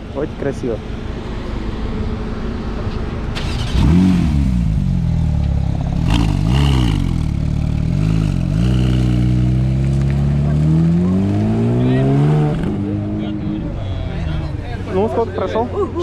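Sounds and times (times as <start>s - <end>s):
car engine revving: 3.3s - 14.6s.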